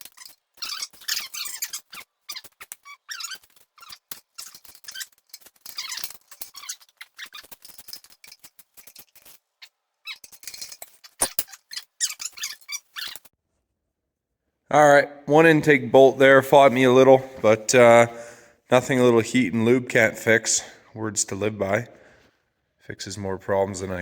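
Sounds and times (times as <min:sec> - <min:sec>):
squeaky bolt being turned: 0:00.0 - 0:13.3.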